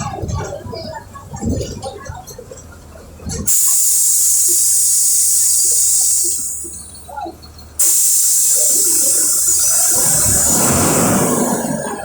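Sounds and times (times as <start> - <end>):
compressed air hissing: 3.5 - 6.9, 7.8 - 12.0
engine humming: 4.5 - 12.0.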